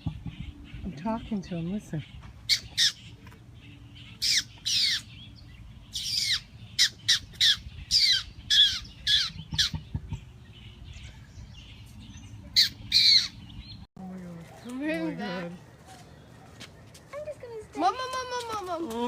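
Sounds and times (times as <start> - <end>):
bird squawking harshly: 6.0 - 10.0.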